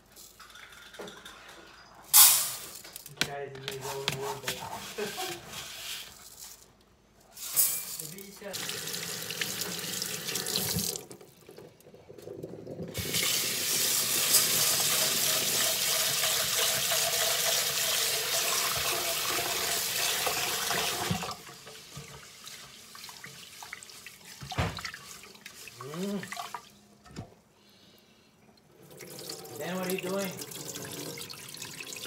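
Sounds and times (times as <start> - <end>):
tap water running into sink: 8.4 - 26.7, 28.8 - 32.0.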